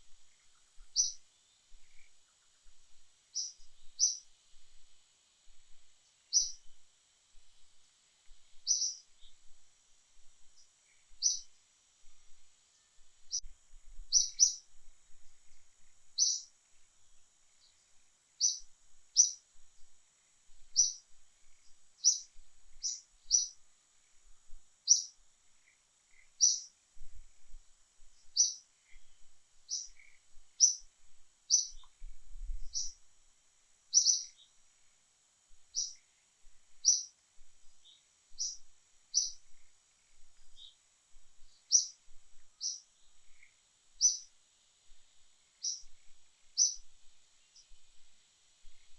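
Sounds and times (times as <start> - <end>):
bird chirping: 0.0 - 2.7, 3.3 - 4.3, 6.3 - 6.8, 8.5 - 9.5, 10.4 - 11.5, 12.3 - 13.5, 14.1 - 14.7, 15.8 - 16.5, 17.5 - 19.4, 20.6 - 23.6, 24.8 - 26.7, 28.2 - 30.9, 31.5 - 33.0, 33.9 - 34.6, 35.7 - 36.1, 36.8 - 40.8, 41.4 - 44.3, 45.6 - 47.8
steady high hiss: 0.0 - 48.9.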